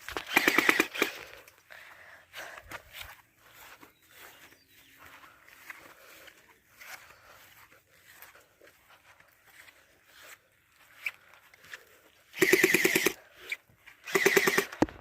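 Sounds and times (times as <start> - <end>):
gel blaster full-auto burst: 0.2 - 1.2, 12.4 - 13.2, 14.1 - 15.0
motor-driven whirr: 14.0 - 15.0.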